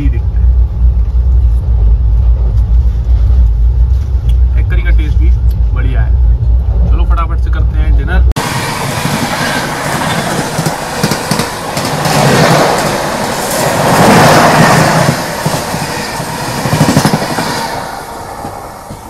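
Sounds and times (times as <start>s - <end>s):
train wheels clattering over rails: 8.4s - 19.0s.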